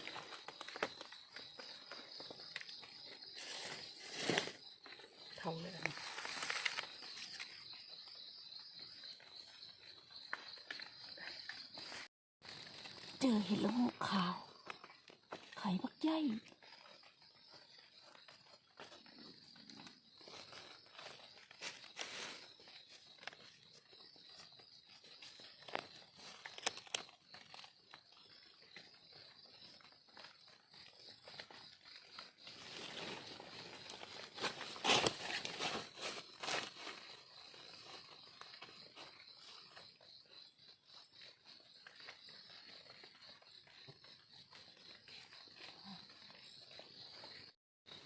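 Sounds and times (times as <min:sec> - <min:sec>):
insects droning: 0:00.0 - 0:48.0
footsteps crackling on dry leaves: 0:03.2 - 0:04.6, 0:05.8 - 0:07.5, 0:20.2 - 0:23.1, 0:32.4 - 0:38.2
dry leaves crackling and rustling: 0:05.8 - 0:07.4.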